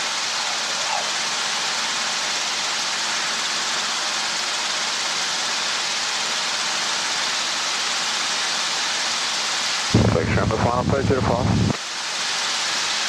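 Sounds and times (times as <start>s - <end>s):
helicopter intercom hiss: 0.0s - 2.0s, 9.9s - 11.9s.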